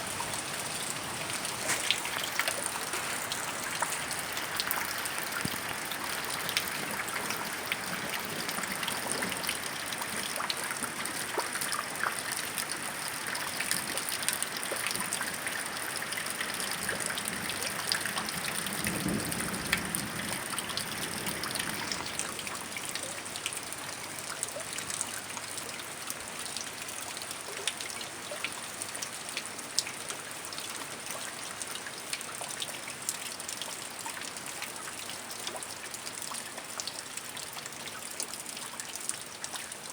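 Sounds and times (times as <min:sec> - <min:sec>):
drops dripping and splashing: 0:00.0 - 0:23.6
heavy rain falling: 0:00.0 - 0:24.2.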